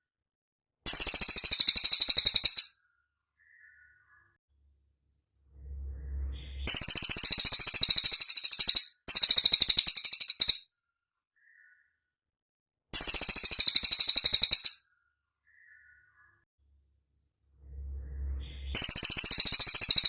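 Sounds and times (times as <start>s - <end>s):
songbird high-pitched rattling trills: 0.9s - 2.7s, 6.2s - 10.6s, 13.0s - 14.8s, 18.3s - 20.0s.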